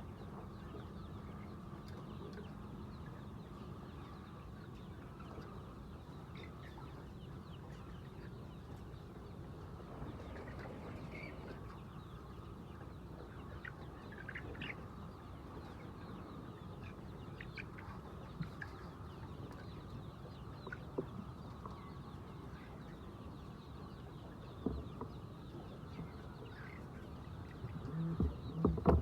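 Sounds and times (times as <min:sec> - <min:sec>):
faint knocks: 0:28.1 - 0:29.0.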